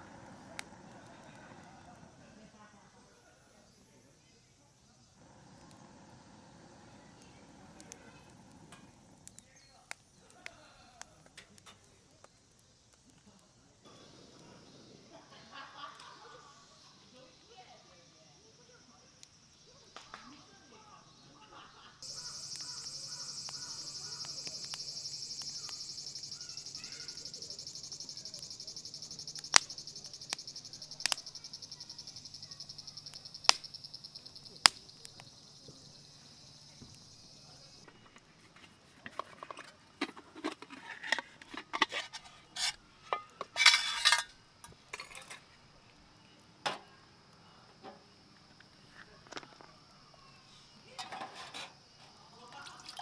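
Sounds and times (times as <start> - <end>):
high pulsing chirr: 22.0 - 37.8
cookware and utensils clinking: 39.0 - 45.5, 50.9 - 51.8.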